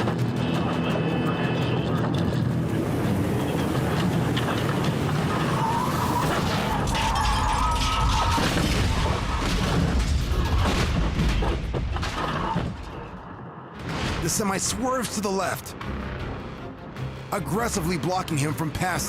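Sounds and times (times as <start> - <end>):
knocks and scraping: 0.0 - 8.9
loud rumbling road noise: 0.0 - 9.3
wavering squeal: 4.4 - 8.4.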